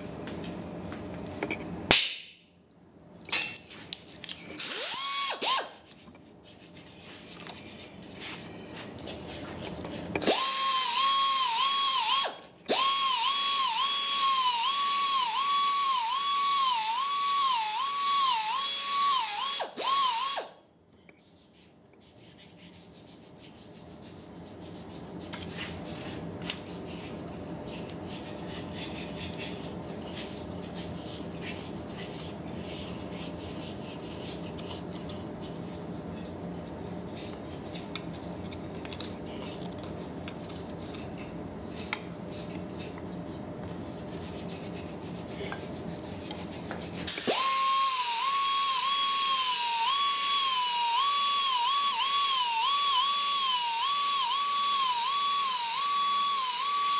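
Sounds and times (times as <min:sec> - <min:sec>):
knife scraping wood: 0:21.2 - 0:47.1
belt sander whining on wood: 0:47.2 - 0:56.9.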